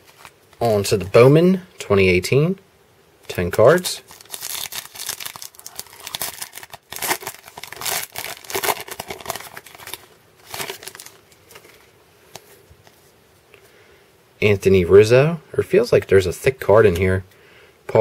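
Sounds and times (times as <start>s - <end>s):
wrapper crinkling and tearing: 3.8s - 11.9s.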